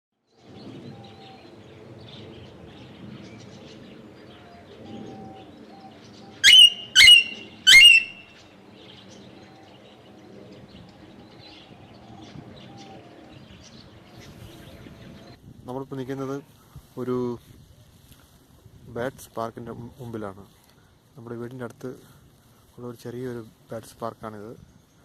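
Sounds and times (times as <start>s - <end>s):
birds chirping: 0.4s - 15.4s
shrill bird calls: 6.2s - 8.5s.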